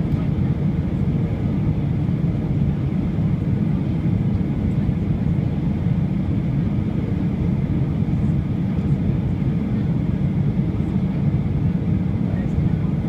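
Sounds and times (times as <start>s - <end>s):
jet engine rumble inside cabin: 0.0s - 13.0s.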